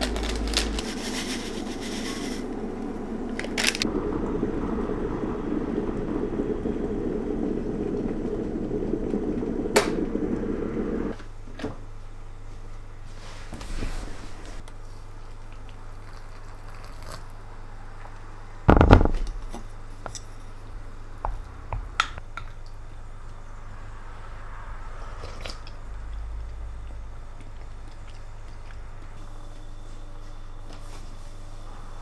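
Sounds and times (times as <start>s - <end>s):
steady low hum: 0.0s - 11.2s, 18.7s - 22.4s
loud thump: 18.7s - 19.6s
sharp clicks and knocks: 18.7s - 22.2s.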